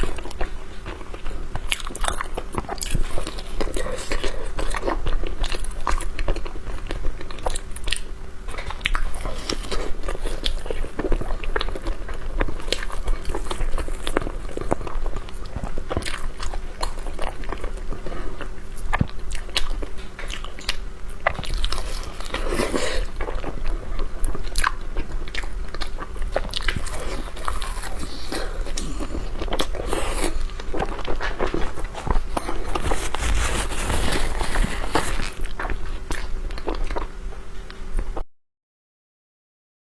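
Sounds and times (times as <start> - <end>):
person chewing pastry: 0.0 - 38.2.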